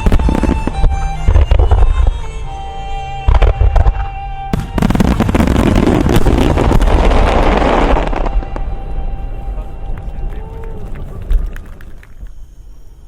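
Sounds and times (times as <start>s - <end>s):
fireworks crackling: 0.0s - 2.2s, 3.3s - 12.5s
music: 0.0s - 13.0s
fireworks booming: 3.3s - 8.8s.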